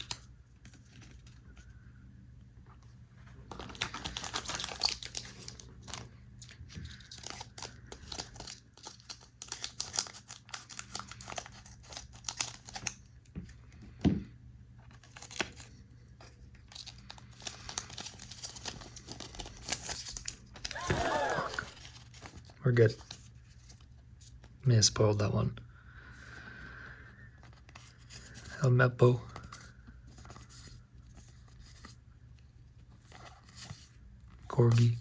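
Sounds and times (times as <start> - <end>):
foil pack crinkling and tearing: 0.0 - 0.2, 3.5 - 13.0, 14.9 - 15.8, 16.6 - 23.5
cards being handled: 0.0 - 1.8, 2.8 - 14.2, 14.8 - 24.6, 27.2 - 35.0.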